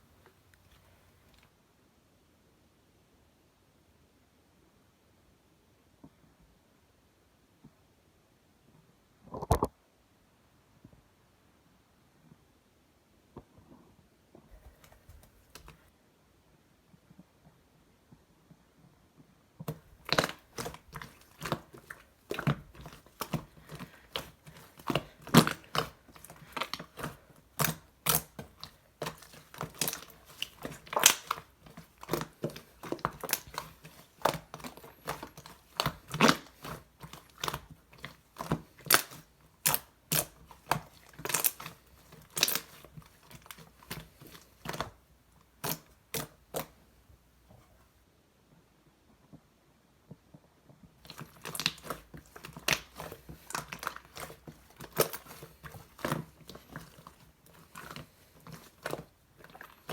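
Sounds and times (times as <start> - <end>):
slime squished by hand: 19.6 - 46.8, 51.0 - 59.9.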